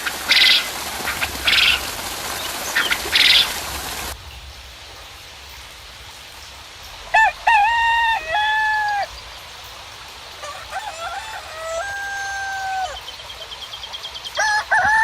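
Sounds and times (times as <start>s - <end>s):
rooster crowing: 7.1s - 9.1s, 10.4s - 13.1s, 14.4s - 15.0s.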